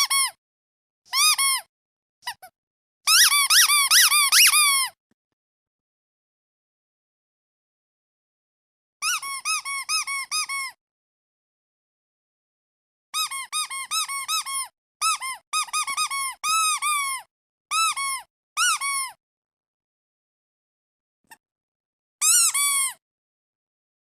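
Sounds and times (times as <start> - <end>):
squeaky duck toy squeaking: 0.0 - 0.4, 1.1 - 2.5, 3.1 - 5.0, 9.0 - 10.8, 13.2 - 19.2, 22.2 - 23.0.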